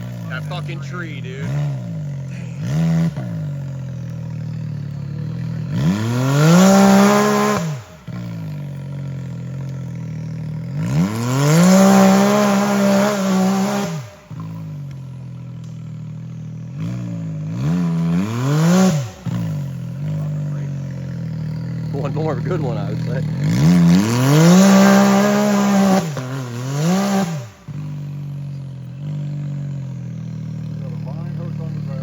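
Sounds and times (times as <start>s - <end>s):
utility vehicle engine idling and revving: 0.0s - 32.0s.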